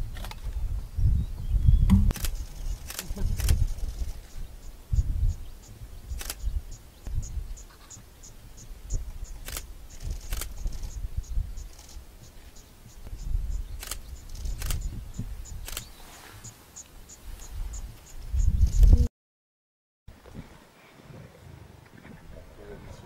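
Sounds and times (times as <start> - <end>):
sharp clicks: 1.9 - 4.1, 6.1 - 7.2, 9.0 - 11.0, 13.8 - 14.9, 15.6 - 15.9
insect chirping: 2.1 - 18.9.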